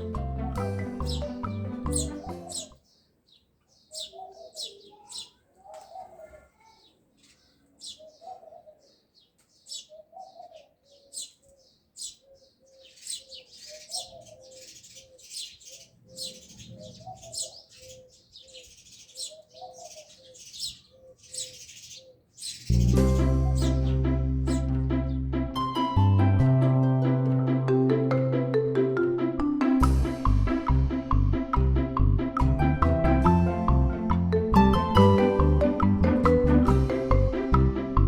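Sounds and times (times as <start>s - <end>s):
dove cooing: 0.0s - 2.8s, 3.9s - 7.0s, 7.7s - 9.1s, 9.7s - 24.0s
small birds chirping: 0.0s - 25.2s.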